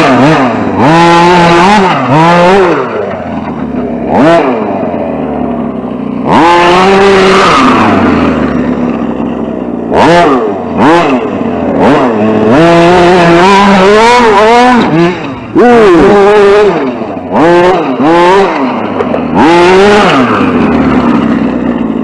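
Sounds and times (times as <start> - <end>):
rc truck motor revving: 0.0 - 22.0
tyres on dirt: 0.0 - 22.0.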